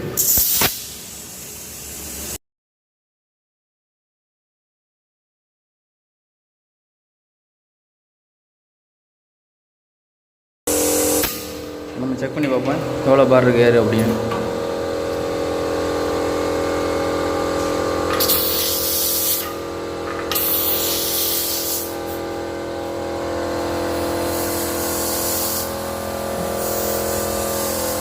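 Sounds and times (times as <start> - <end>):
air hissing from valve: 0.2 - 2.4, 10.7 - 11.7, 18.2 - 19.6, 20.3 - 22.2, 23.9 - 28.0
steady machine hum: 10.7 - 28.0.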